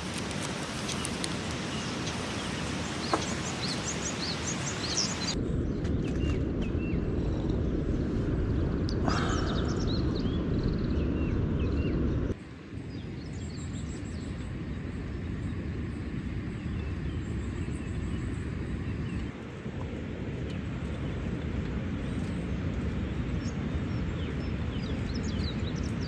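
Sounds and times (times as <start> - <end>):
birds chirping: 0.0 - 5.4, 21.9 - 26.0
steady low rumble: 0.0 - 26.0.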